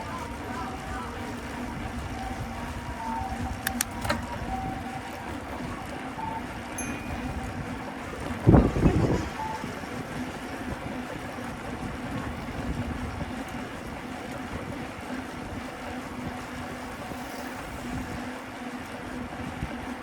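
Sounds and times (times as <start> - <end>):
street traffic noise: 3.2 - 10.5, 16.7 - 18.4
wind rushing over microphone: 6.8 - 16.4.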